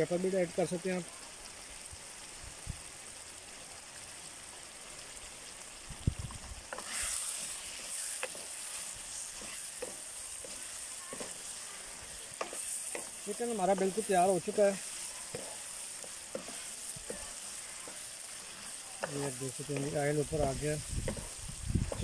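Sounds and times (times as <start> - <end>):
chicken sizzling in a wok: 0.0 - 22.0
wooden spoon scraping a pan: 6.7 - 22.0.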